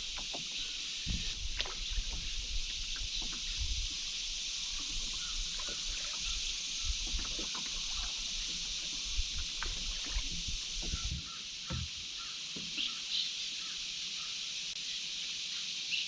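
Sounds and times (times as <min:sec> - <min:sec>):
wind rumble on microphone: 0:00.0 - 0:11.2
paddle splashes and knocks: 0:00.0 - 0:12.0
steady high hiss: 0:00.0 - 0:16.0.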